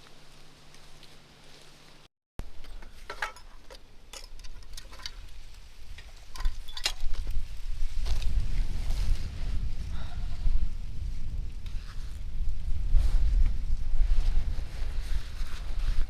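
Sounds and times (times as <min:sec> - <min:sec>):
low rumble: 0:07.4 - 0:15.9.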